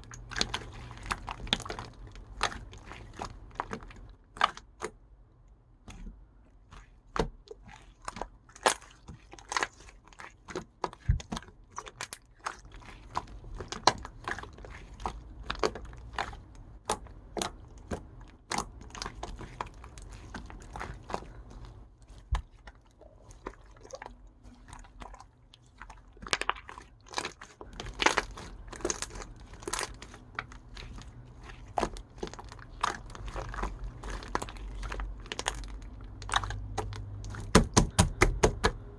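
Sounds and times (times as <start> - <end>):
slime clicking and popping: 26.2 - 38.8.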